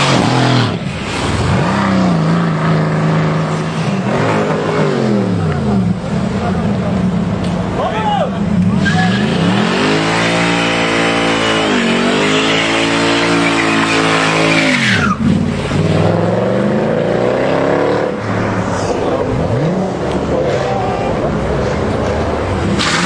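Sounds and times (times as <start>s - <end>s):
car engine revving hard: 0.0s - 6.6s, 8.6s - 23.0s
tyres squealing: 8.8s - 15.9s.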